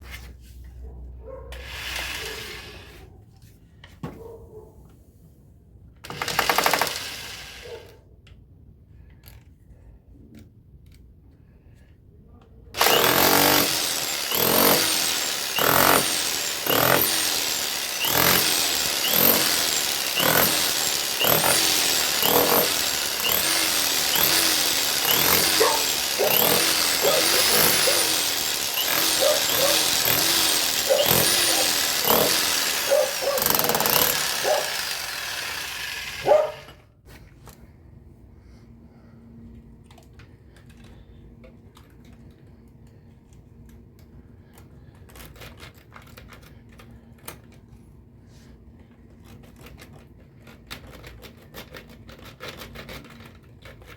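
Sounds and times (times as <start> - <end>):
tool strokes with gliding pitch: 19.7 - 33.4.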